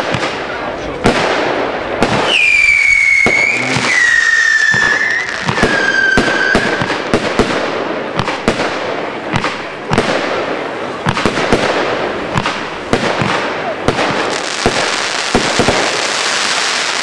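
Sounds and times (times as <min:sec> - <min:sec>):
firework bangs and pops: 0:00.0 - 0:17.0
firework whistling shots: 0:01.2 - 0:08.8.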